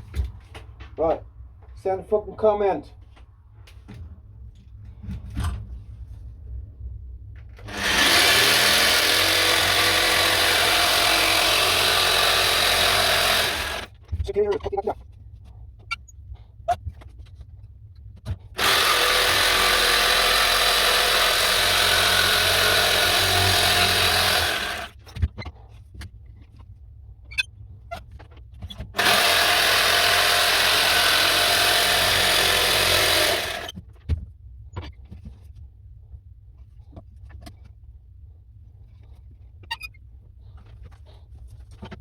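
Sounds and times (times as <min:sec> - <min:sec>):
power tool working on wood: 0:07.6 - 0:13.9, 0:18.6 - 0:25.0, 0:29.0 - 0:33.7.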